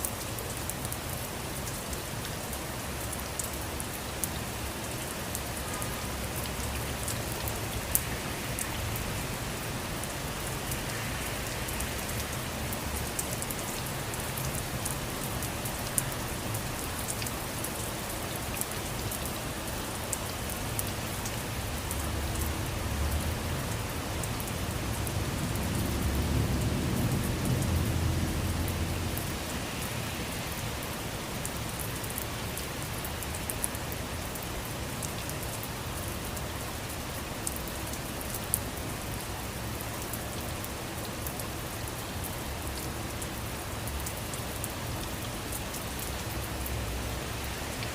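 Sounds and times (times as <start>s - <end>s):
steady rain: 0.0s - 47.9s.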